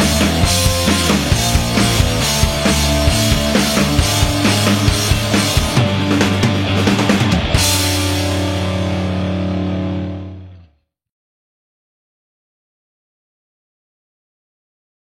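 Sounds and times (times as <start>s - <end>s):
rock band playing: 0.0s - 10.6s.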